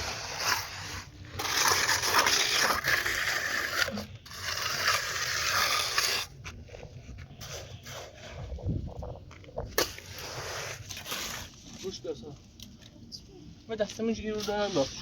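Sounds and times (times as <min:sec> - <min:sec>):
rough scraping: 0:00.0 - 0:12.3.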